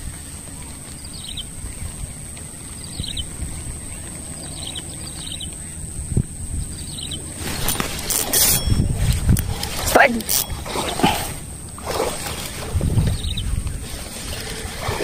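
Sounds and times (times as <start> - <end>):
steady low rumble: 0.0 - 15.0
bird chirping: 0.2 - 11.6, 12.4 - 15.0.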